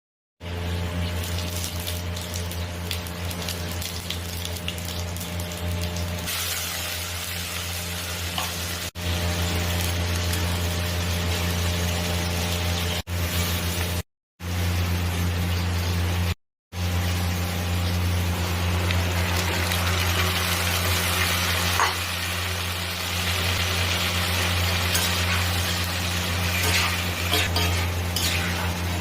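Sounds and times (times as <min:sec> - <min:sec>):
curry sizzling in a pan: 0:00.4 - 0:29.0.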